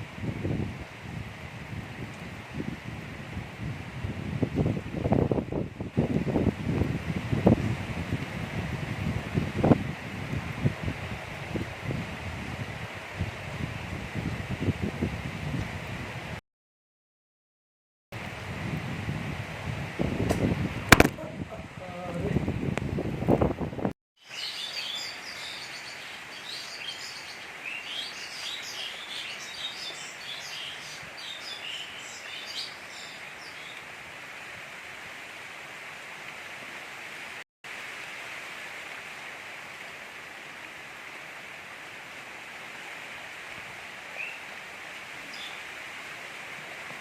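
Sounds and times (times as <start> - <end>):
gentle rain: 0.0 - 16.4, 18.2 - 47.0
small birds chirping: 24.3 - 33.8.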